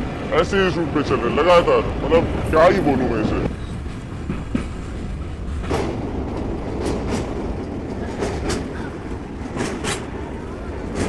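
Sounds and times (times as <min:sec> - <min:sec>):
train wheels rumbling on track: 0:00.0 - 0:11.0
wheels clacking over rail joints: 0:00.4 - 0:11.0.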